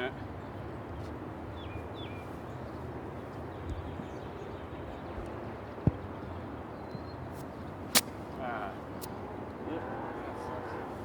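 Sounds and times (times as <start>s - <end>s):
golf club striking ball: 7.9s - 8.3s.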